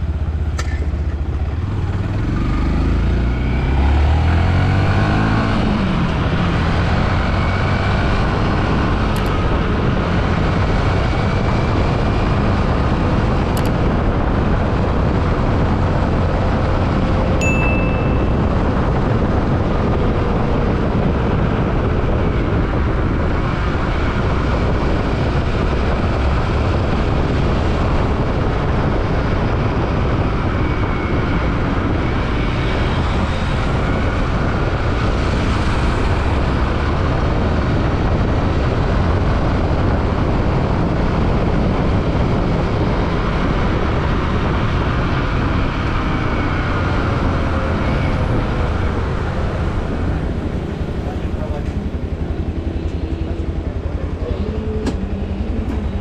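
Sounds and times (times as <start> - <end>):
motorcycle engine drone: 0.0 - 56.0
wind and road noise: 0.0 - 56.0.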